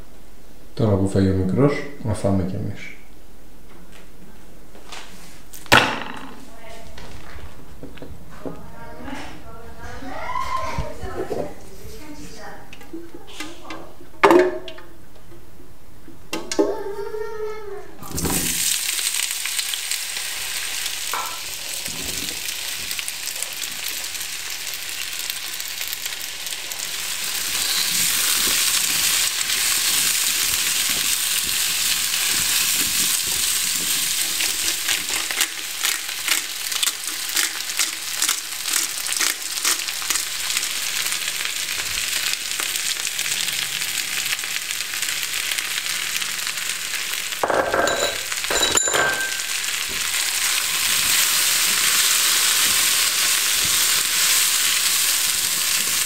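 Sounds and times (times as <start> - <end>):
food sizzling in hot oil: 18.0 - 56.0
oil crackling and spattering: 18.2 - 47.4.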